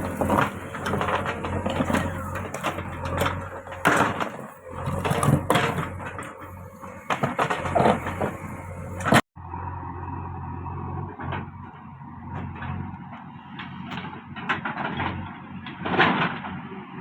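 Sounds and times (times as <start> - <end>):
clanks and scraping bangs: 0.0 - 9.3
heavy machine engine humming: 0.0 - 17.0.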